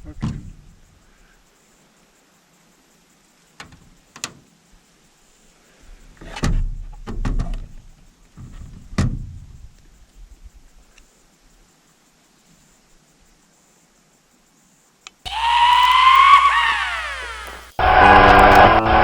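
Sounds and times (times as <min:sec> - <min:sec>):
sharp clicks: 0:15.3 - 0:19.0.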